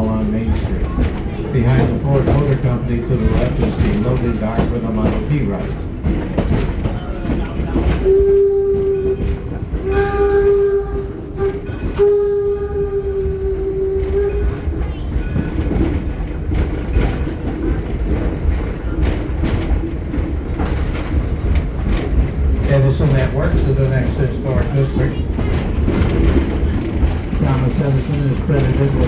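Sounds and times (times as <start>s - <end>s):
moving train rumble and clatter: 0.0s - 29.0s
steam locomotive whistle: 7.9s - 14.9s.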